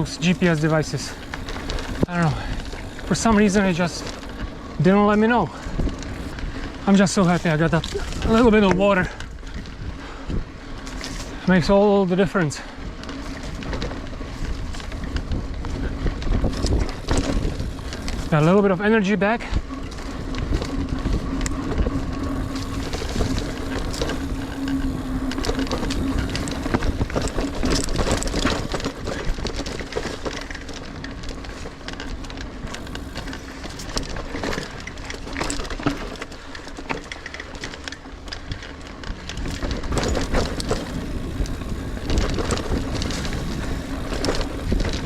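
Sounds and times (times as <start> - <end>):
wind noise: 0.0 - 11.9, 12.6 - 37.5, 38.3 - 45.0
bike clicks and rattles: 0.0 - 45.0
bike tyre rumble on dirt: 0.0 - 45.0
steady hum: 19.6 - 29.1.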